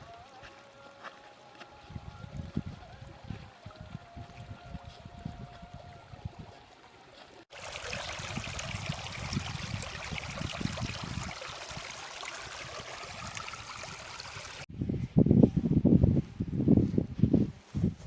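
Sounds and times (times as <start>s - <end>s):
stream water rushing: 7.5s - 14.7s.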